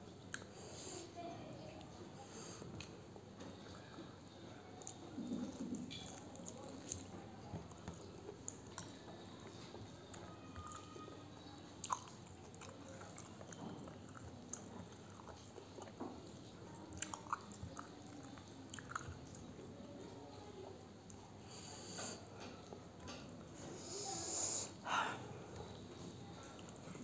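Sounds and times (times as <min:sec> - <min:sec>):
faint close-up chewing: 0:00.2 - 0:00.6, 0:01.7 - 0:24.8, 0:25.4 - 0:27.0.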